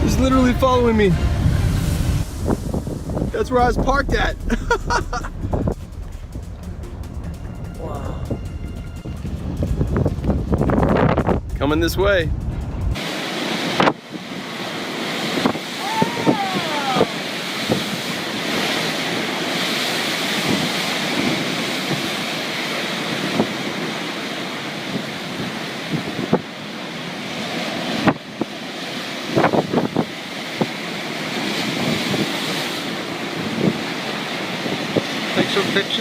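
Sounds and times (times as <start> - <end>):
rising and falling tone: 0.0 - 11.6
strong wind roaring over microphone: 0.0 - 36.0.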